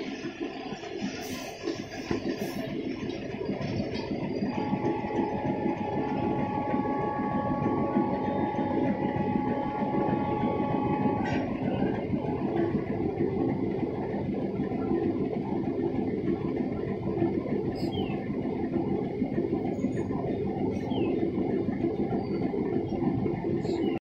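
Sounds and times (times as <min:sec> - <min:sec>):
train wheels rumbling on track: 0:00.0 - 0:24.0
steady high tone: 0:04.5 - 0:12.8.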